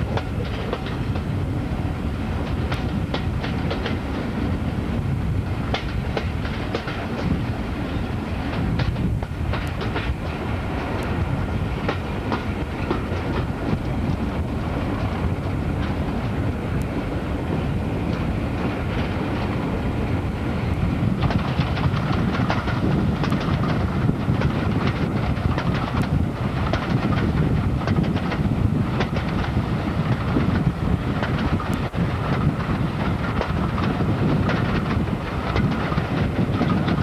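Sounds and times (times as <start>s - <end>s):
wheels clicking over rail joints: 0.0s - 1.4s, 2.4s - 4.2s, 5.7s - 14.3s, 21.2s - 37.0s
train rumble: 0.0s - 37.0s.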